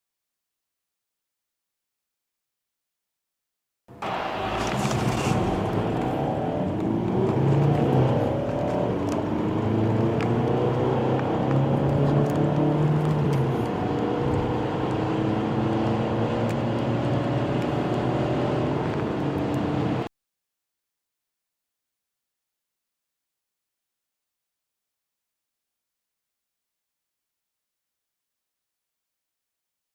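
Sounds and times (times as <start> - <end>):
diesel car engines accelerating: 3.9 - 20.1.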